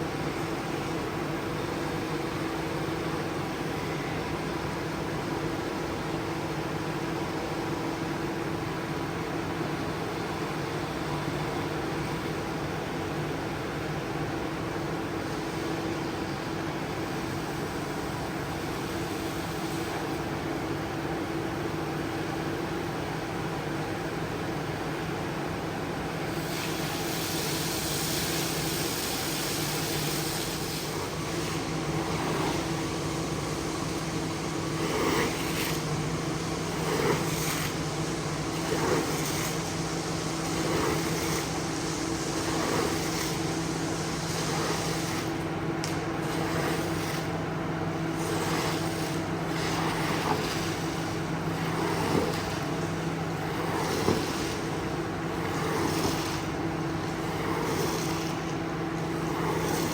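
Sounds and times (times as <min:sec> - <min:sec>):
carpet cleaner motor hum: 0:29.6 - 0:59.9.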